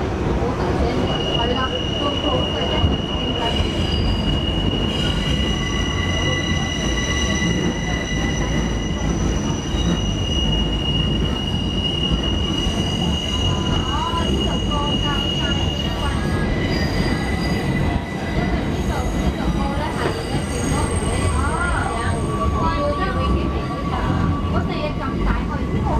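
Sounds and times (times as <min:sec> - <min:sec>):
train car rumble and vibration: 0:00.0 - 0:25.9
train wheels squealing: 0:00.8 - 0:25.9.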